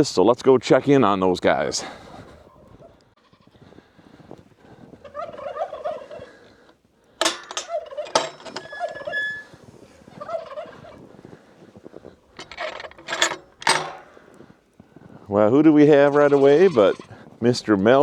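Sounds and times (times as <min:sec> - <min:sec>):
turkeys gobbling: 0:05.0 - 0:06.7, 0:07.7 - 0:08.1, 0:10.1 - 0:11.1.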